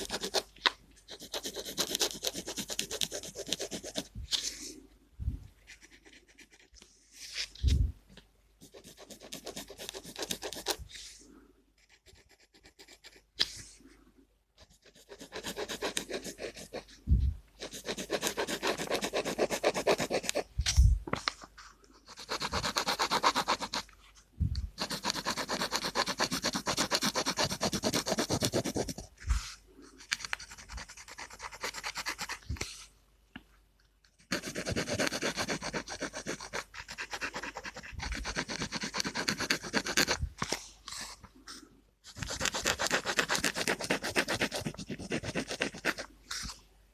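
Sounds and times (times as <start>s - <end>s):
pen scratching on paper: 0.0s - 0.5s, 1.1s - 4.5s, 5.7s - 6.9s, 8.6s - 11.2s, 11.8s - 13.6s, 14.6s - 17.0s, 17.6s - 20.5s, 22.0s - 23.9s, 24.8s - 32.6s, 34.2s - 40.3s, 40.9s - 46.6s.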